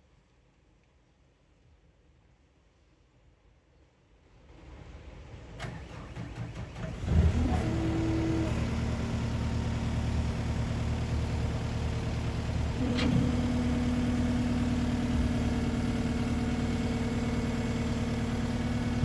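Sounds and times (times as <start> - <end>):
diesel engine starting and running: 5.6 - 19.0.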